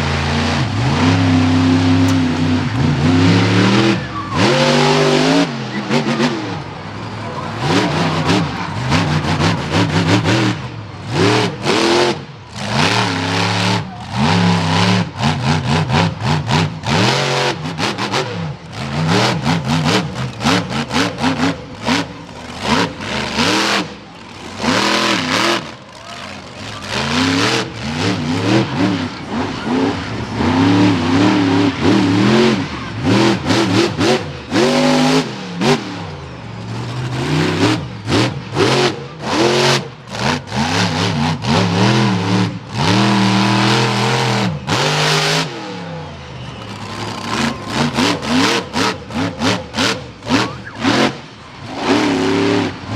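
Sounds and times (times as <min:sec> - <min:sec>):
truck engine revving: 0:00.0 - 0:52.9.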